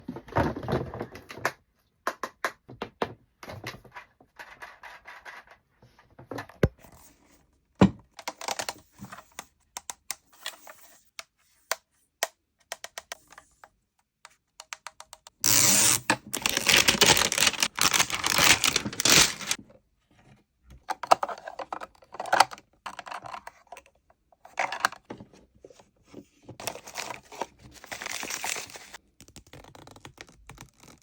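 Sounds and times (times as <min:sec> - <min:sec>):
plastic toys clicking and tapping: 0:08.2 - 0:10.4, 0:11.2 - 0:15.4
packaging rustling and crinkling: 0:15.5 - 0:19.6, 0:26.6 - 0:29.0.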